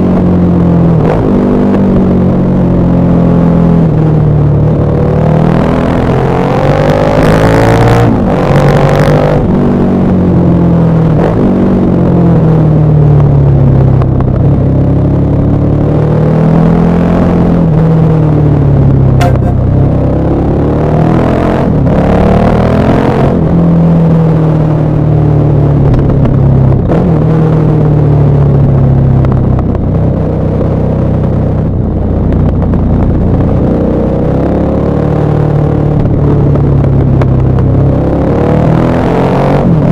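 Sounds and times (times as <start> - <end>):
motorcycle engine and exhaust: 0.0 - 39.9
motorcycle engine running: 17.4 - 20.6.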